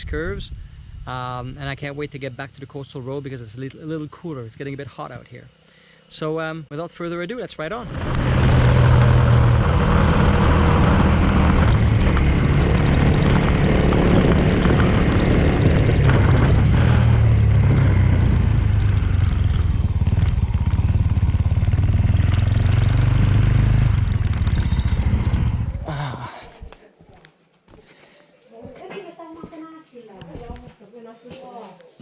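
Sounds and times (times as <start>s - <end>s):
motorcycle engine revving: 7.7s - 26.0s
road and wind noise: 7.8s - 25.9s.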